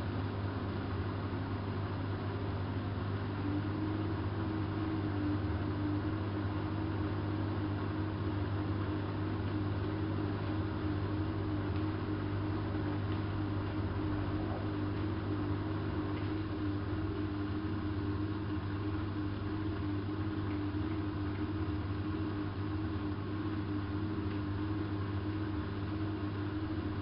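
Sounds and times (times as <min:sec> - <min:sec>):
washing machine motor hum: 0:00.0 - 0:27.0.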